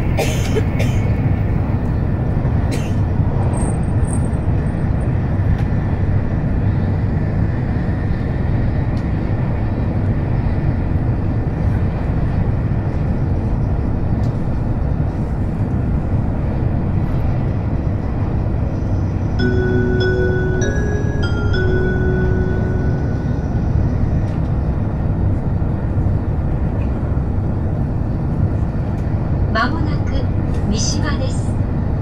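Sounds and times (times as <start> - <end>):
train rumble inside cabin: 0.0 - 32.0.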